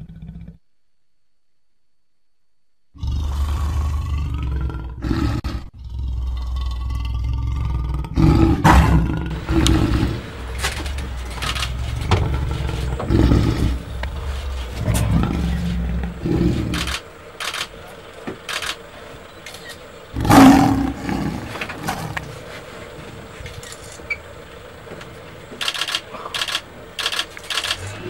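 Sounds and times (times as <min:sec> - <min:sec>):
lion growling: 0:00.0 - 0:00.6, 0:02.9 - 0:28.0
lion roaring: 0:00.0 - 0:00.6, 0:03.0 - 0:17.2, 0:19.9 - 0:24.9.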